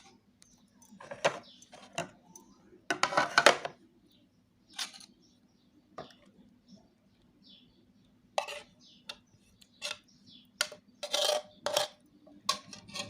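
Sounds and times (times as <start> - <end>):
spoon clinking and scraping plates: 2.9 - 3.7, 8.4 - 9.2, 9.8 - 13.0.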